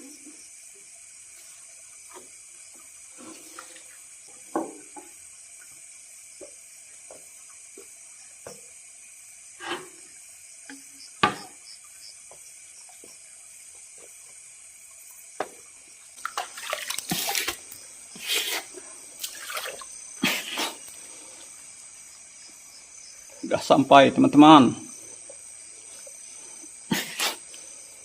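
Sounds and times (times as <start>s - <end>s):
night insects chorus: 0.0s - 28.0s
water splashing and sloshing: 1.3s - 21.9s.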